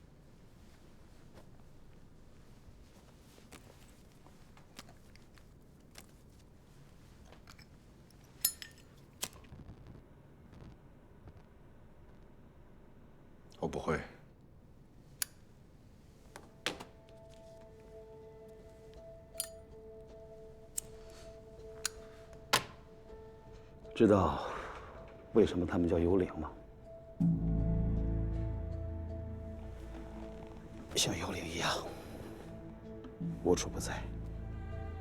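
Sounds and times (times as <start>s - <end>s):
soft background score: 10.0s - 35.0s.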